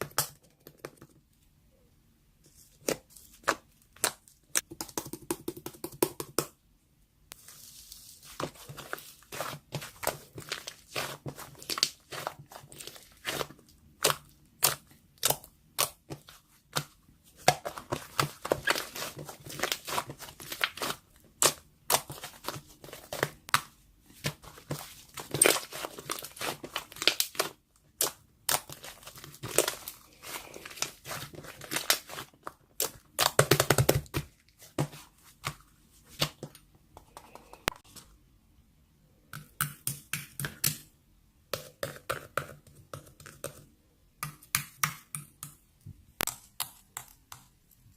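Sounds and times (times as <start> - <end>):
slime crackling and popping: 25.2 - 33.8.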